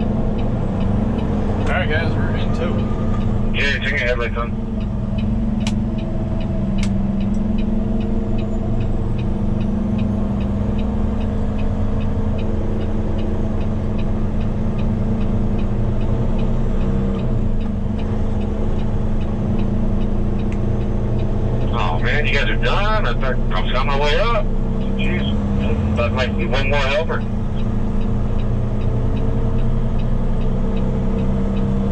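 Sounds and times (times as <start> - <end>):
truck engine and road noise: 0.0 - 31.9
sharp click: 6.8 - 7.4.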